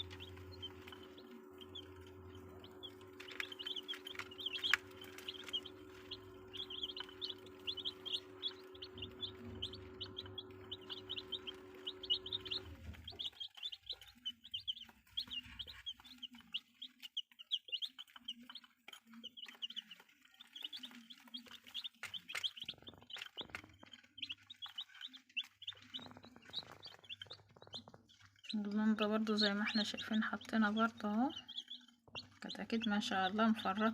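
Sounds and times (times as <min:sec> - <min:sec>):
steady hum: 0:00.0 - 0:15.4
chicks peeping: 0:00.0 - 0:33.9.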